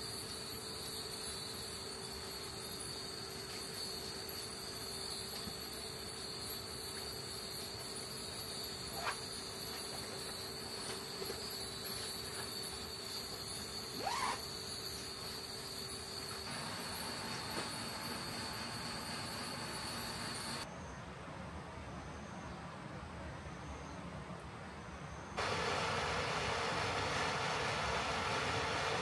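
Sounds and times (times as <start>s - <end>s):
insects droning: 0.0s - 21.1s, 24.9s - 29.0s
rising whistle-like calls: 13.9s - 14.6s.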